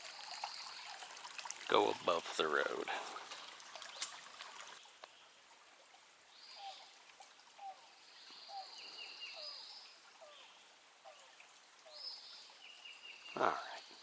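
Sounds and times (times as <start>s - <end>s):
wild animal calls: 13.3s - 14.0s.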